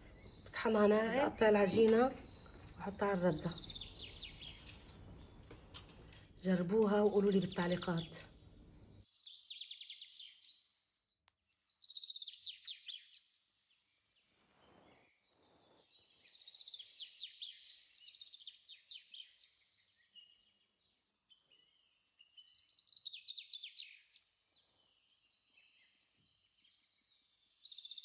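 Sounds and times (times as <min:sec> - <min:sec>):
bird chirping trills: 0:00.0 - 0:28.0
soft rustle: 0:01.6 - 0:06.5, 0:14.2 - 0:16.6.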